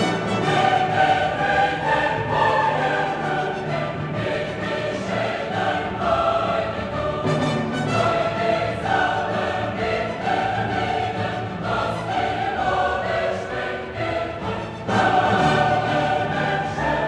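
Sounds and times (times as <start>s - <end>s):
choir singing: 0.0s - 17.0s
orchestra playing: 0.0s - 17.0s.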